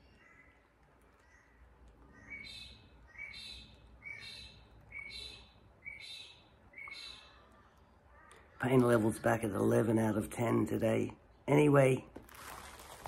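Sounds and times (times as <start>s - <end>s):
bird calling harshly: 2.1s - 8.6s.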